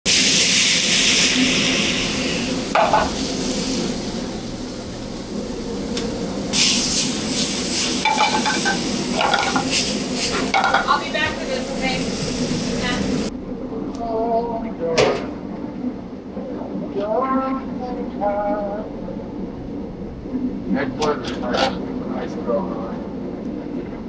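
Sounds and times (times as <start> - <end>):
food sizzling in a pan: 0.1 - 13.3.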